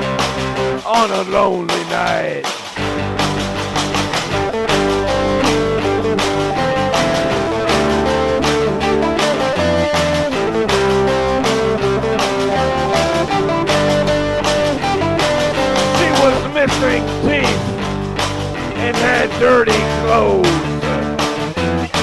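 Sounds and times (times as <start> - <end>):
instrumental rock music: 2.6 - 22.0.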